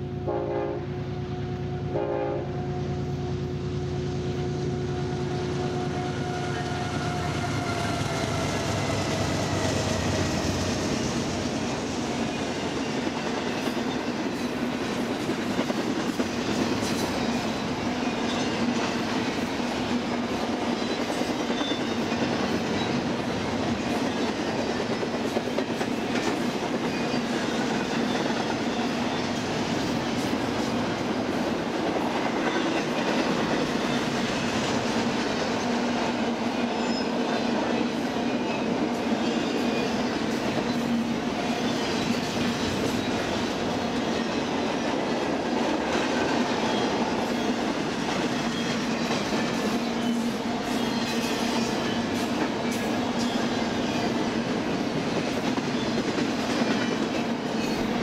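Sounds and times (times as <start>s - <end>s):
locomotive horn blasts: 0.0s - 8.4s
train rolling rumble: 0.0s - 58.0s.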